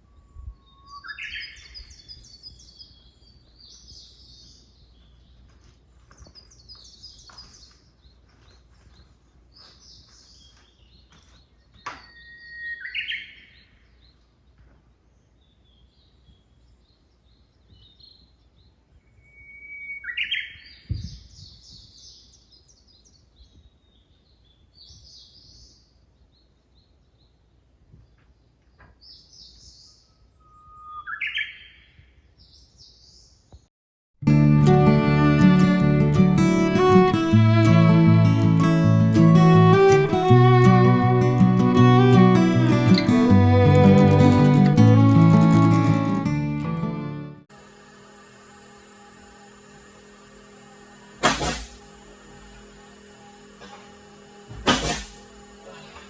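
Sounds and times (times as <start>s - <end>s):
bird whistle with flourish: 0.0s - 2.0s, 12.0s - 13.4s, 19.1s - 20.6s, 30.1s - 31.6s
songbirds twittering: 0.0s - 33.7s.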